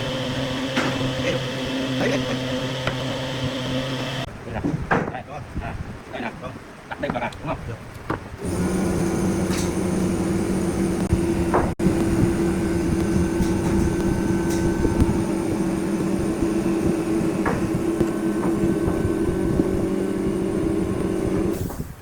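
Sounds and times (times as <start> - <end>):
wood lathe motor hum: 0.0 - 4.3, 8.4 - 21.6.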